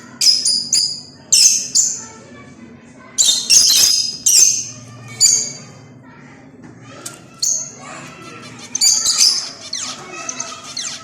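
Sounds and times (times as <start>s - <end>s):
birds squawking and chirping: 3.2s - 5.8s, 7.2s - 11.0s.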